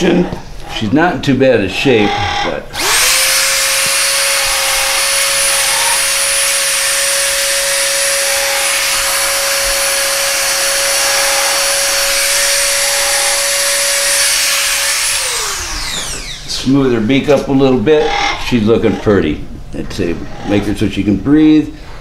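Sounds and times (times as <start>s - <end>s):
rotary tool whining: 0.0s - 16.7s.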